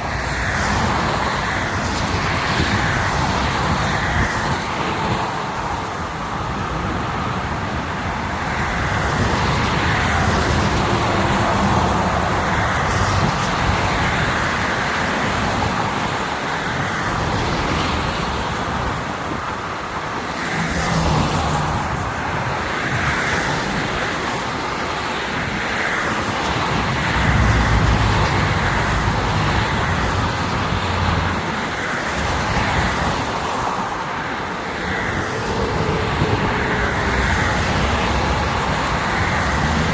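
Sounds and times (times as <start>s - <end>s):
passing vehicle engines humming: 0.0s - 39.9s
tyre and road noise: 0.0s - 39.9s.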